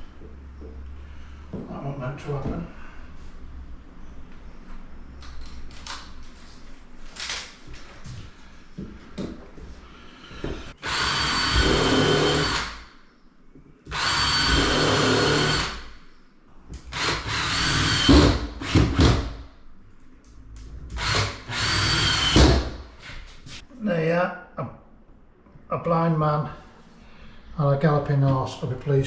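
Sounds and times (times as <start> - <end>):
power drill running: 10.8 - 12.8, 13.9 - 15.9, 16.9 - 19.2, 21.0 - 22.7.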